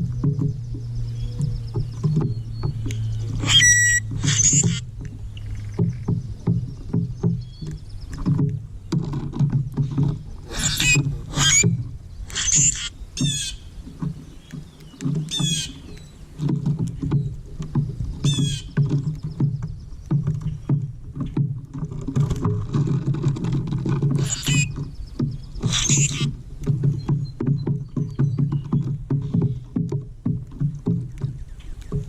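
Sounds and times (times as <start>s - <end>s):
choppy low rumble: 0.0s - 9.0s
birds calling rapidly: 0.0s - 32.0s.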